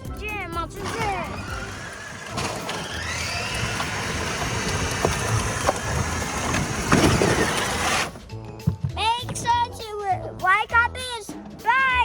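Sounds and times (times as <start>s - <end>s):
vehicle engine running: 0.0s - 8.2s
rising engine whine: 0.7s - 8.2s.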